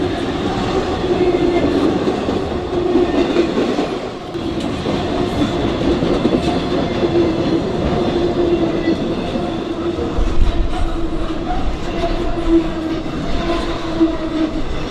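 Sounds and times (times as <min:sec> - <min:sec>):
train wheels rumbling on rails: 0:00.0 - 0:14.9
clicks of train wheels: 0:01.6 - 0:09.4.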